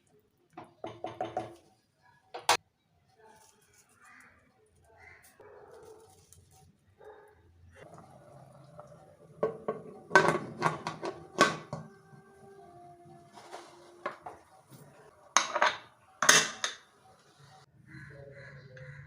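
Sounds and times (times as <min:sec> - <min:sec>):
metal utensil clinking on pots: 0:09.4 - 0:12.1, 0:15.3 - 0:16.9.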